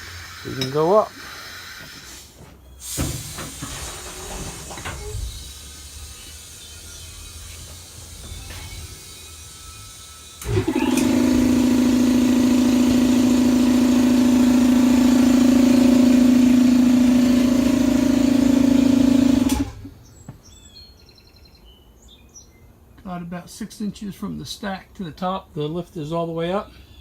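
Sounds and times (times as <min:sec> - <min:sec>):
lift motor humming: 0:03.2 - 0:20.0.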